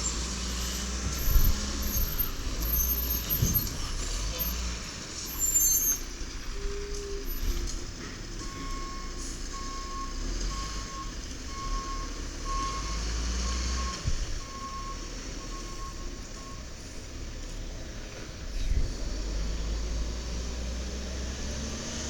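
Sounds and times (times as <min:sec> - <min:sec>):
diesel engine running: 0:00.0 - 0:22.0
truck backup alarm beeping: 0:08.3 - 0:17.0.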